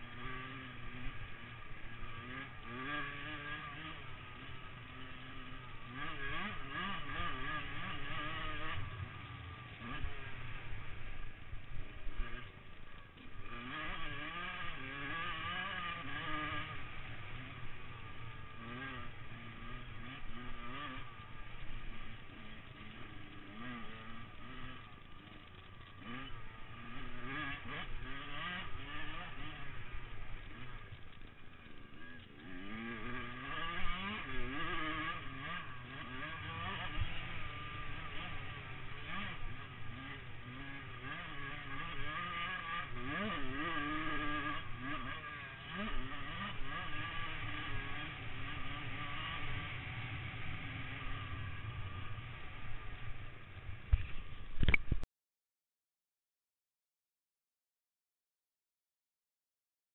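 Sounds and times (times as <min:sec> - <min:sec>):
motocross engines revving: 0:00.0 - 0:54.5.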